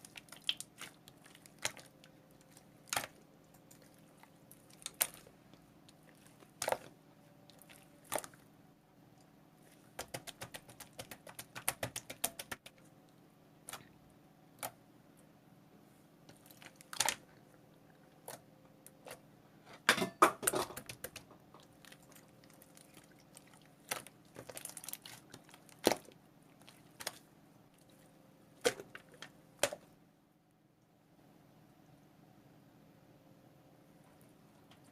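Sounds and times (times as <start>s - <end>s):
faint steady hum: 0.0s - 34.9s
sharp clicks and taps: 10.0s - 12.8s.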